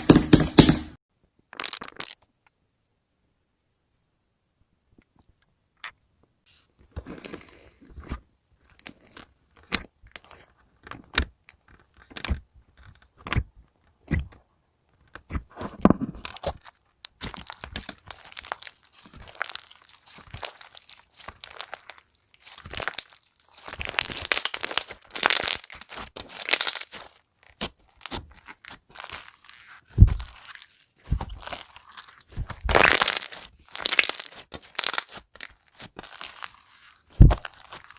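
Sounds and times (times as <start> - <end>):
slime crackling and crunching: 1.6 - 2.2, 15.2 - 37.9.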